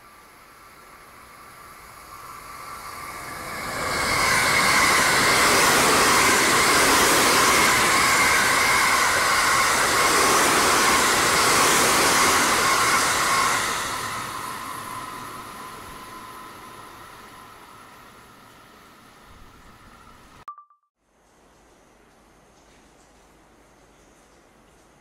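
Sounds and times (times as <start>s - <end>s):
train wheels rushing on rail: 0.2s - 20.2s
bright ringing tone: 20.5s - 20.9s.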